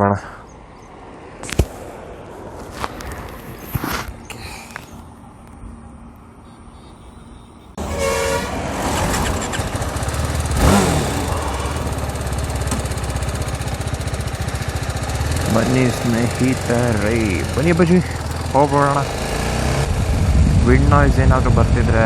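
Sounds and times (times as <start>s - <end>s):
horn toot: 7.8s - 14.4s
motorcycle engine running: 7.8s - 22.0s.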